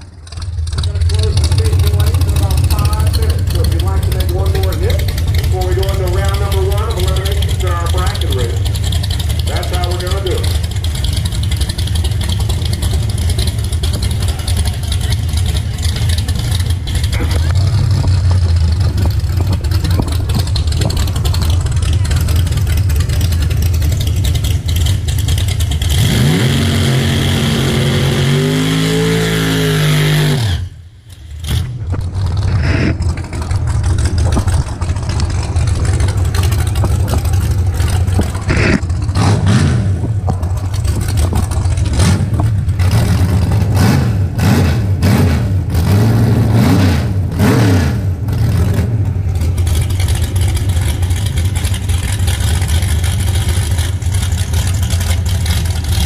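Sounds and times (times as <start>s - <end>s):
steady low rumble: 0.0s - 26.1s, 30.6s - 46.5s
engine blipped up and down: 0.0s - 56.0s
race car engine revving: 0.0s - 56.0s.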